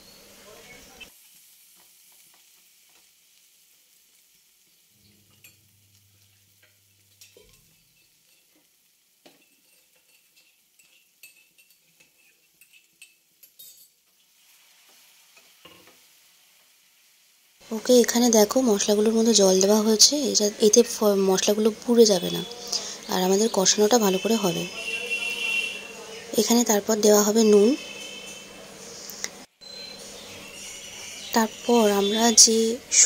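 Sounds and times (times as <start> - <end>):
faint sizzling in a pan: 0.0 - 33.0
spatula scraping a pan: 9.3 - 13.2.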